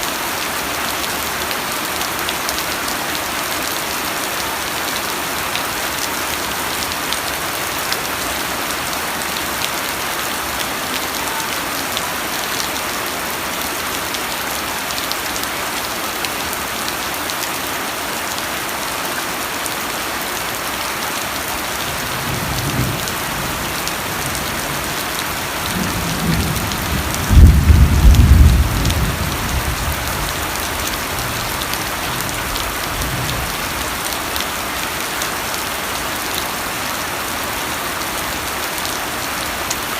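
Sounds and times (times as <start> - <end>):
steady rain falling: 0.0 - 39.9
thunder rumbling: 25.7 - 31.6.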